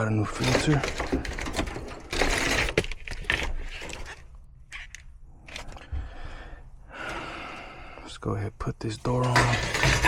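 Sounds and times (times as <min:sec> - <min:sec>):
metal scraping: 0:09.0 - 0:10.0.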